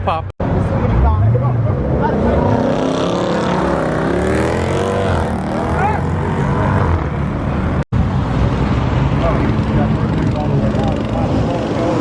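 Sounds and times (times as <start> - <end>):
car engine revving: 0.5 - 7.8.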